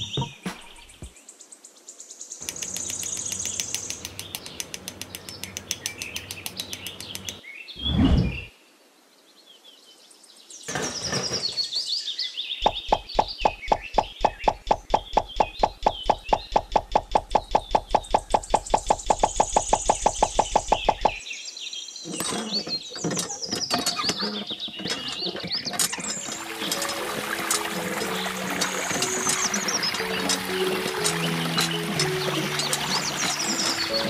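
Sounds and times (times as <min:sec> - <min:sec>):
birds chirping: 0:00.0 - 0:08.6, 0:10.7 - 0:34.0
fast sharp knocks: 0:12.6 - 0:21.2.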